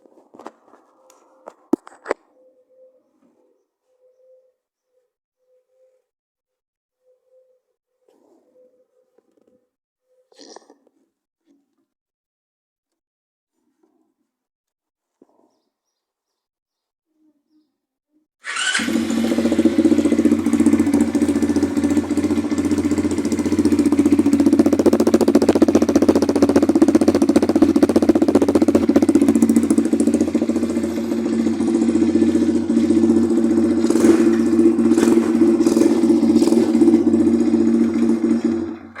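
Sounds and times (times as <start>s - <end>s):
motocross bike engine running: 18.5s - 39.0s.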